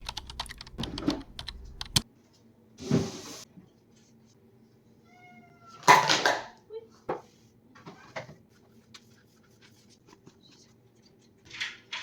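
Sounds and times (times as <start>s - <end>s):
sharp clicks and taps: 0.0s - 2.0s
cat meowing: 5.0s - 6.0s.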